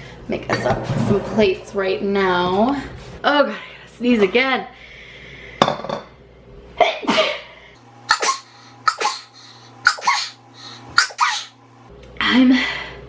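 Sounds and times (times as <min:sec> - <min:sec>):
woman sneezing: 0:08.1 - 0:11.5.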